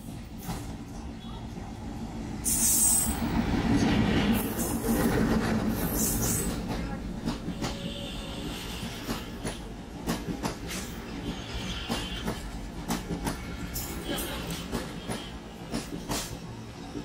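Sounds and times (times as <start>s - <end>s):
train wheels clattering over rail joints: 4.3s - 17.0s.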